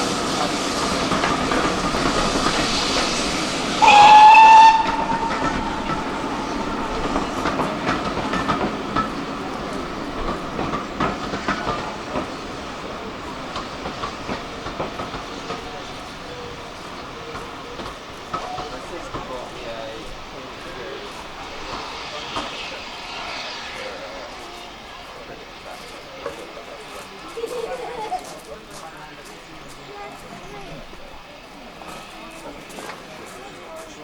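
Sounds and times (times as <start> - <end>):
train passing: 0.0 - 34.0
train whistle blast: 3.8 - 7.6
wheels clicking over rail joints: 3.8 - 21.2.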